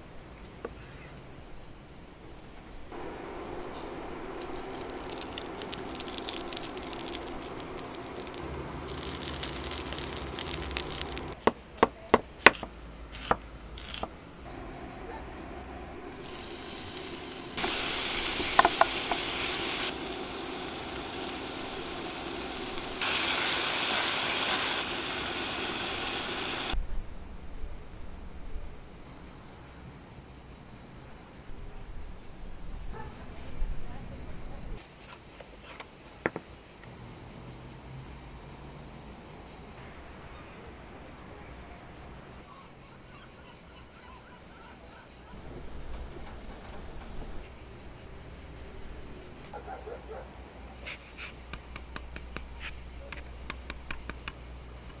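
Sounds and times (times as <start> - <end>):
onion sizzling in a frying pan: 3.0 - 11.4, 13.1 - 26.8.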